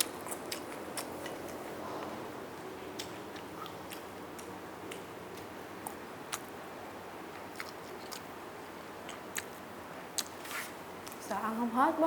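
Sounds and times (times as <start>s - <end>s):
chewing with wet mouth clicks: 0.0s - 1.7s, 2.9s - 6.6s, 7.3s - 8.3s, 9.0s - 10.4s.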